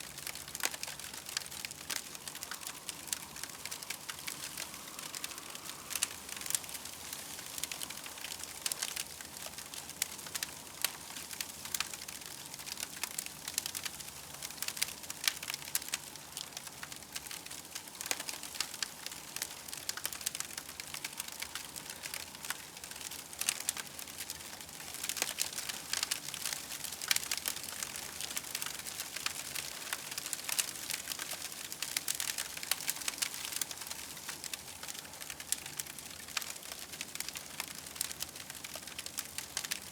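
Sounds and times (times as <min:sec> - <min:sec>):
campfire crackling: 0:00.0 - 0:39.9
fire pops and snaps: 0:00.1 - 0:17.3.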